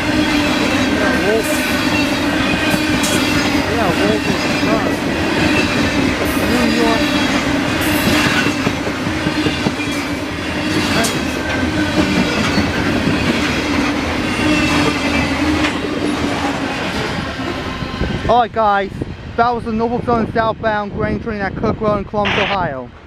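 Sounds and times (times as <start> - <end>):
high wheel squeal: 0.0 - 8.6, 9.3 - 13.6, 14.2 - 15.7
steel wheels rumbling on rail: 0.0 - 21.8.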